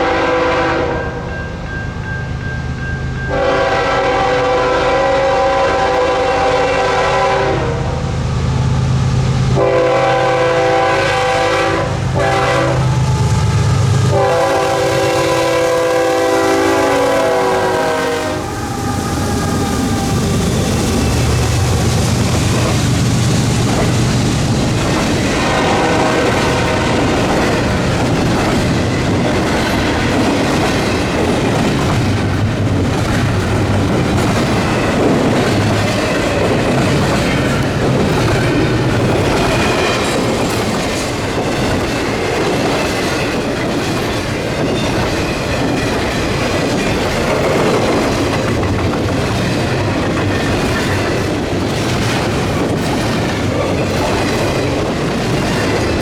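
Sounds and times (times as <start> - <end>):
freight train rumbling past: 0.0 - 56.0
wheels clacking over rail joints: 14.1 - 56.0.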